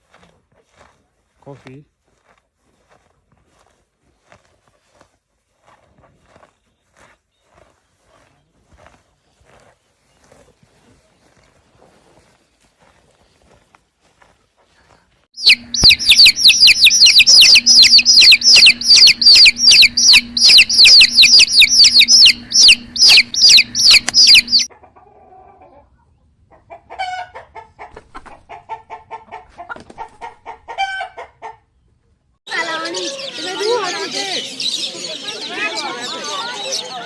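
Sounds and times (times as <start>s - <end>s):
chicks peeping: 15.4s - 24.7s, 32.5s - 37.0s
chickens clucking: 15.4s - 31.6s, 32.5s - 37.0s.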